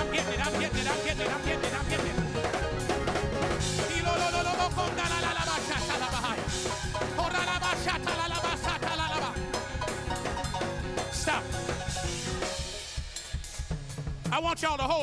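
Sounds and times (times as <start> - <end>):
voices singing: 0.0 - 12.5
live praise music with drums: 0.0 - 15.0.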